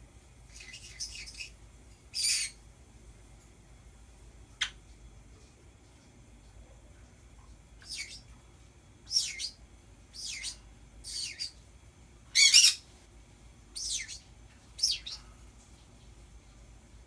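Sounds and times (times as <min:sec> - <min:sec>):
birds giving high downward calls: 0:00.5 - 0:01.6, 0:02.2 - 0:02.6, 0:07.8 - 0:08.3, 0:09.1 - 0:11.6, 0:12.3 - 0:12.8, 0:13.8 - 0:15.3.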